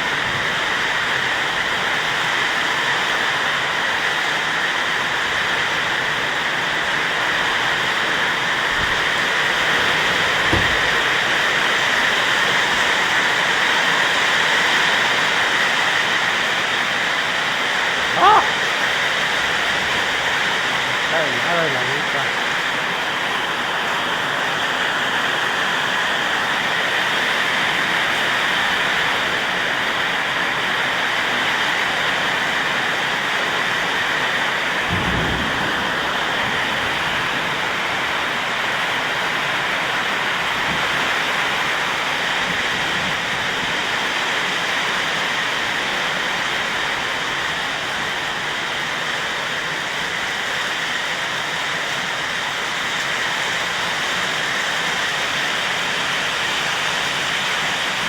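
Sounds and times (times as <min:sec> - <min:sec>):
heavy rain pouring: 0:00.0 - 0:58.0
low thump: 0:10.4 - 0:11.4.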